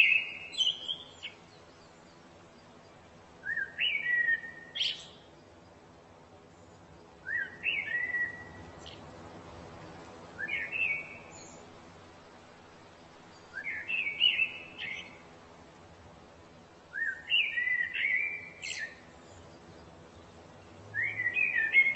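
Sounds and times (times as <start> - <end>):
songbird whistling: 0.0 - 1.4, 3.4 - 5.2, 7.2 - 9.0, 10.4 - 11.6, 13.4 - 15.2, 16.9 - 19.1, 20.9 - 21.9.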